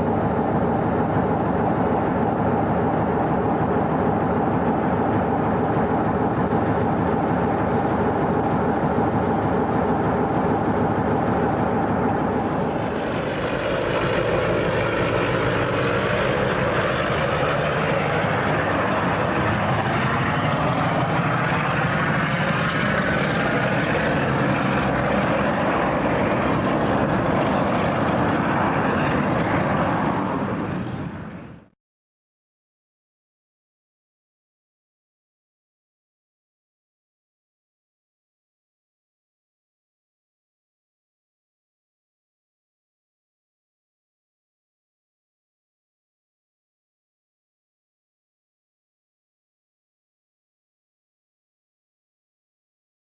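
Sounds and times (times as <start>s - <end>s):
diesel engine drone: 0.0s - 31.7s
train passing close by: 0.0s - 31.8s.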